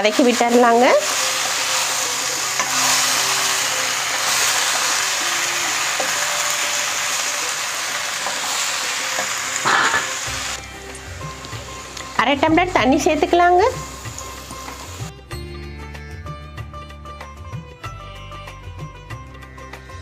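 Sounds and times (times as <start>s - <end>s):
food sizzling in hot oil: 0.0s - 15.1s.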